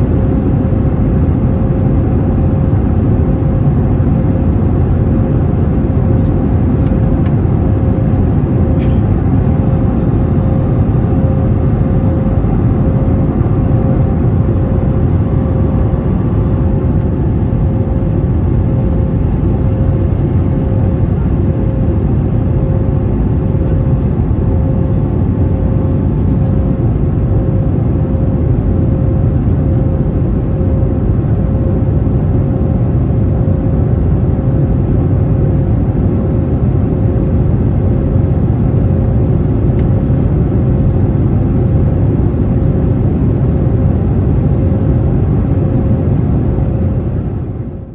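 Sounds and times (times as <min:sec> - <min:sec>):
aircraft engine rumble: 0:00.0 - 0:47.9.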